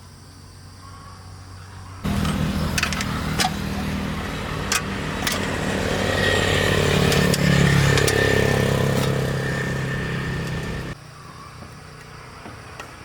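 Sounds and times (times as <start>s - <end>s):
engine running: 2.0s - 11.0s.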